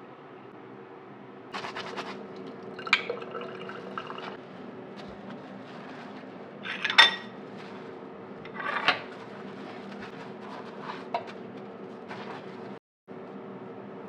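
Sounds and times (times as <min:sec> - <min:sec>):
dishes and cutlery clattering: 0:06.6 - 0:07.4.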